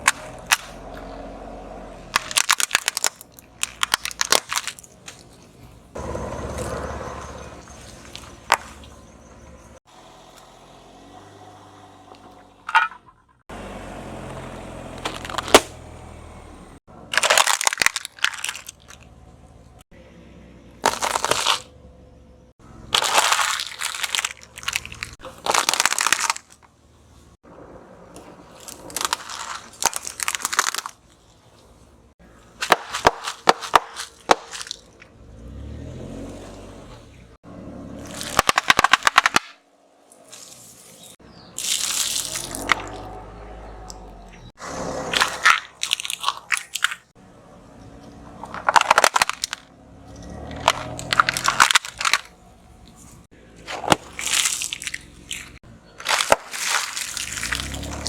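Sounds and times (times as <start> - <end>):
objects crunching under car tyres: 0.0 - 20.0, 20.6 - 58.0.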